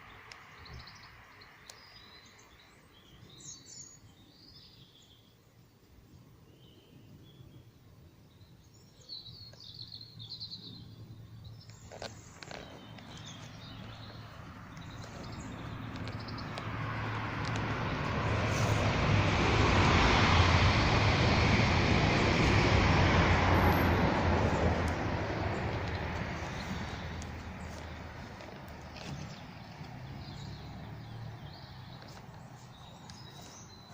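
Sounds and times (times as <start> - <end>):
birds chirping faintly: 0.0 - 20.0, 23.5 - 33.9
motor vehicle approaching: 9.7 - 33.9.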